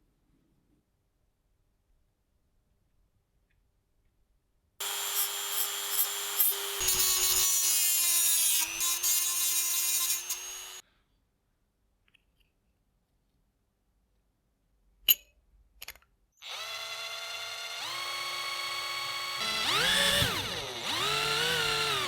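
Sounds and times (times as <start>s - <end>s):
power tool grinding: 4.8s - 10.8s, 16.5s - 22.0s.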